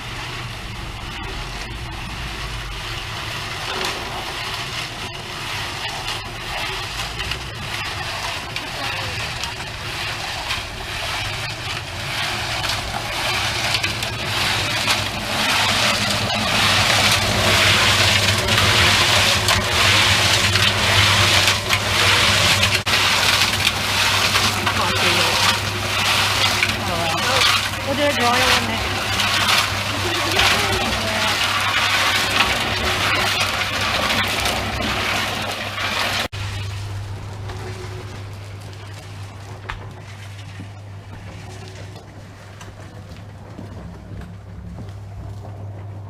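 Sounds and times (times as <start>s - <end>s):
motor running with gritty churning: 0.0s - 46.0s.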